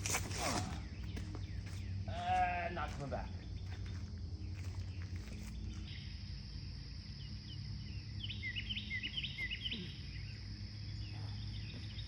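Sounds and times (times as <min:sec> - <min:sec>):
songbird chirping: 0:00.5 - 0:12.0.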